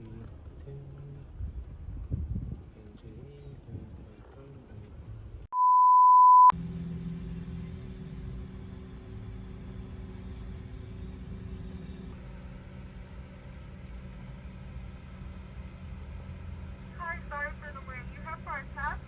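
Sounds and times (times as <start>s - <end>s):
road noise: 0.0s - 5.5s, 6.5s - 19.0s
vehicle engine humming: 0.0s - 5.5s, 6.5s - 19.0s
high beep: 5.5s - 6.5s.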